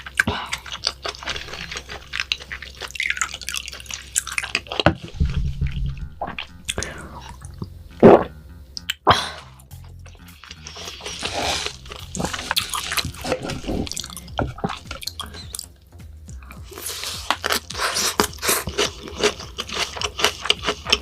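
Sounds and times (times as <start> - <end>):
person chewing and biting: 0.0 - 9.0, 9.8 - 15.8, 16.4 - 21.0
wet mouth clicks: 6.2 - 9.1, 9.9 - 15.7.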